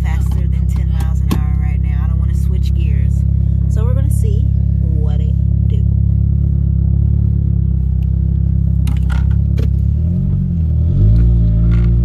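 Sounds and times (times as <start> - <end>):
loud car engine and exhaust: 0.0 - 12.0.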